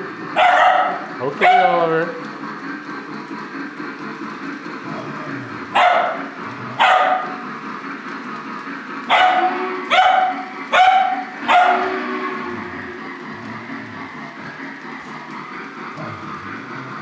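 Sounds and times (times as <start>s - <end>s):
model train rumbling on track: 0.0s - 17.0s
dog barking: 0.4s - 1.8s, 5.7s - 6.2s, 6.8s - 7.4s, 9.1s - 12.0s.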